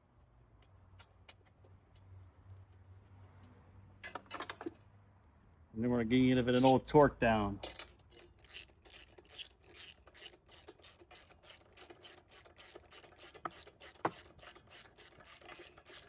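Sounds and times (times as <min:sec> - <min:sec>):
socket ratchet clicking: 0:08.1 - 0:16.0.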